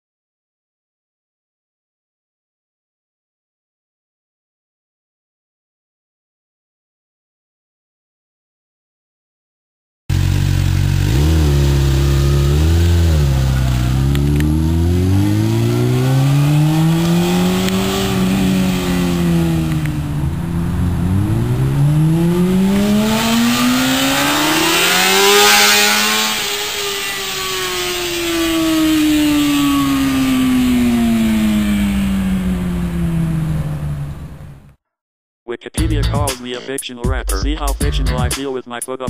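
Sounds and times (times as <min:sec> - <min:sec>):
motorcycle engine revving: 0:10.1 - 0:34.8.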